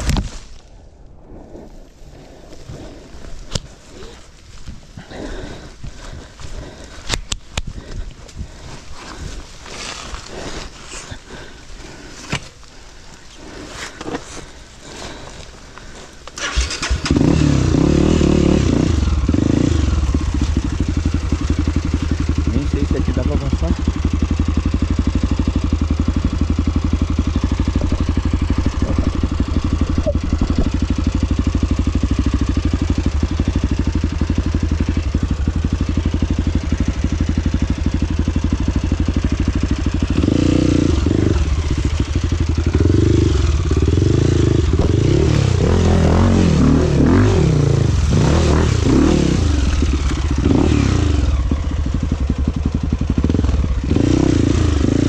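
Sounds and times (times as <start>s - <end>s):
motorcycle engine revving: 16.0s - 55.0s.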